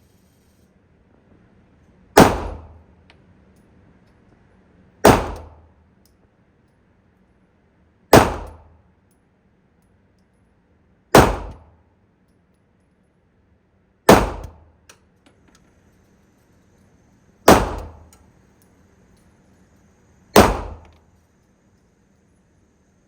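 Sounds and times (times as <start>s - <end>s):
handgun shots: 2.2s - 2.8s, 5.0s - 5.7s, 8.1s - 8.8s, 11.2s - 11.7s, 14.1s - 14.7s, 17.5s - 18.2s, 20.4s - 21.0s.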